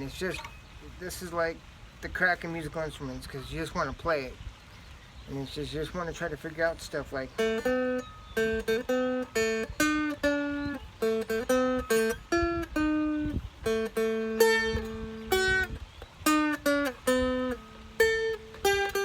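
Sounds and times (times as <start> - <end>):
fretted string instrument picked: 0.0 - 0.8, 6.6 - 19.0.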